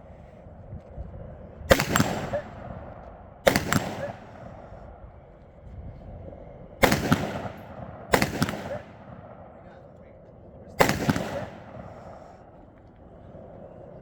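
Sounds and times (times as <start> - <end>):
gunshots with echo: 1.7 - 4.9, 6.8 - 10.0, 10.8 - 12.5.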